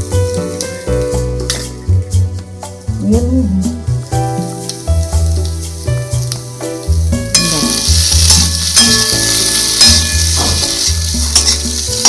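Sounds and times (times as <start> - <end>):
potatoes sizzling in oil: 0.0 - 2.9, 3.8 - 12.0
background music with bass line: 0.0 - 12.0
spatula scraping and clinking: 7.3 - 12.0.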